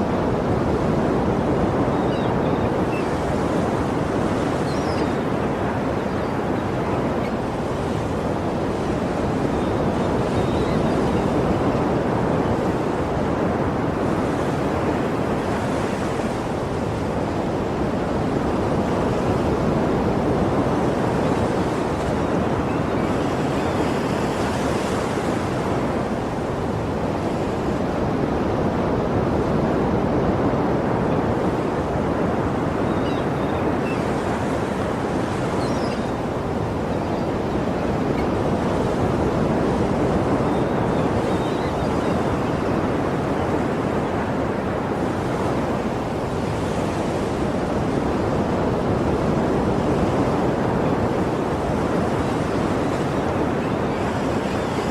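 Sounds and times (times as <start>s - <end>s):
sea waves washing: 0.0s - 54.9s.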